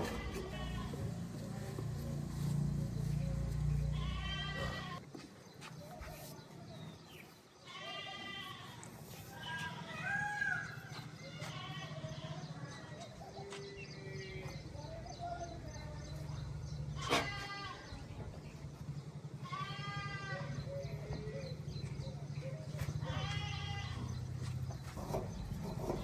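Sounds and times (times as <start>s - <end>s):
livestock bleating: 0.0s - 1.4s, 3.7s - 5.0s, 7.6s - 10.6s, 11.2s - 12.7s, 17.0s - 18.1s, 19.4s - 20.7s, 23.0s - 24.3s
idling engine hum: 0.0s - 5.0s, 10.4s - 26.0s.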